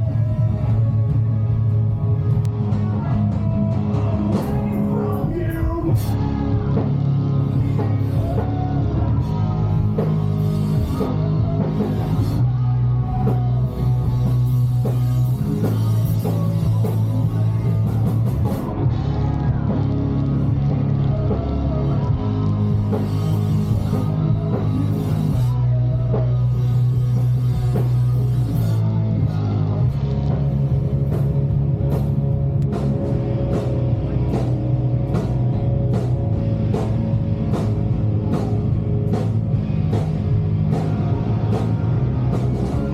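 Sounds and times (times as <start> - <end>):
live rock band playing: 0.0 - 42.9.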